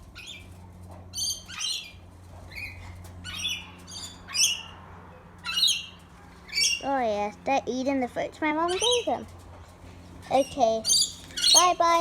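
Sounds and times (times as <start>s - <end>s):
birds squawking: 0.1s - 7.0s, 8.5s - 9.3s, 10.3s - 12.0s.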